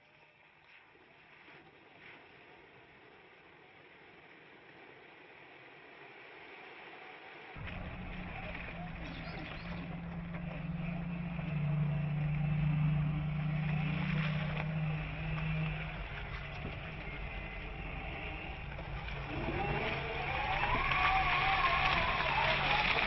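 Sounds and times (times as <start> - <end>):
low steady hum: 0.0 - 23.0
vehicle rolling noise: 0.9 - 23.0
electric motor whine rising: 6.3 - 23.0.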